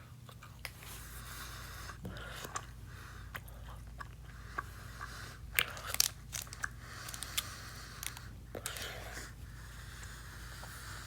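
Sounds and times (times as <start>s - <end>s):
chewing gummy candy: 1.8s - 9.4s.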